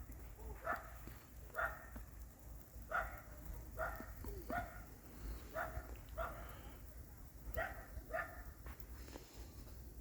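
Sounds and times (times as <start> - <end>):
dog barking: 0.5 - 2.0, 2.9 - 4.9, 5.5 - 6.5, 7.5 - 8.6.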